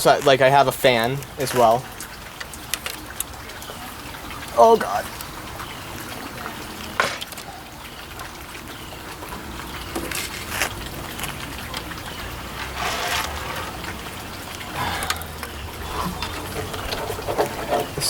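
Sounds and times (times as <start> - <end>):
rustle of small parts: 9.9 - 18.0.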